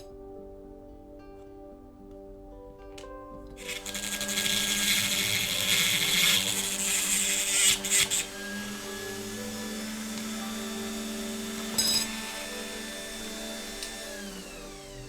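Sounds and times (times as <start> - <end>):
background music: 0.0 - 15.0
small power tool on metal: 3.6 - 15.0.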